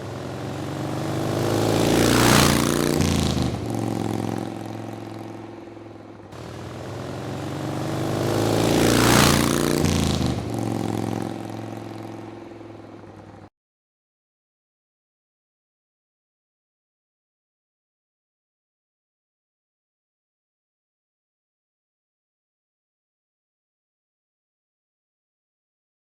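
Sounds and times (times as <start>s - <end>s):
motorcycle passing at speed: 0.0s - 13.5s.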